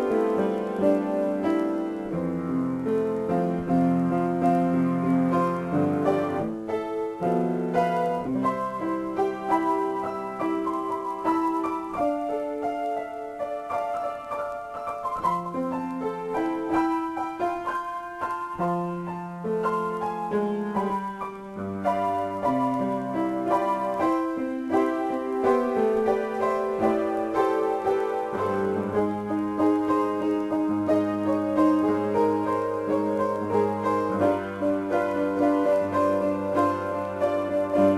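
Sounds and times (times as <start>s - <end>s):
solo piano: 0.0s - 37.9s.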